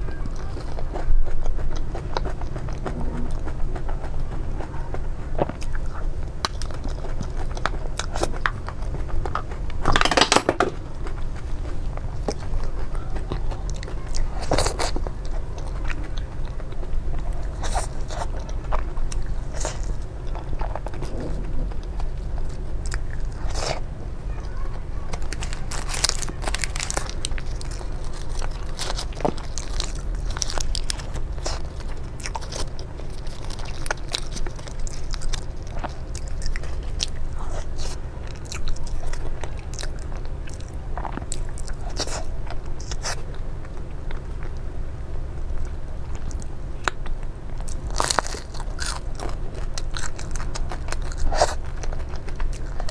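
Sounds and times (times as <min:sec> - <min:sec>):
steady low hum: 0:00.0 - 0:52.9
crunchy bites and chewing: 0:00.2 - 0:23.9, 0:25.1 - 0:44.7, 0:45.7 - 0:52.9.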